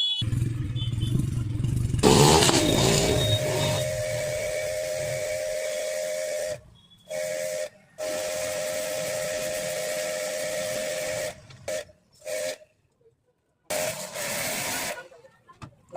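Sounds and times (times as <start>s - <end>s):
pump whine: 2.0s - 11.6s
pressure washer spraying water: 2.0s - 12.5s, 13.7s - 15.1s.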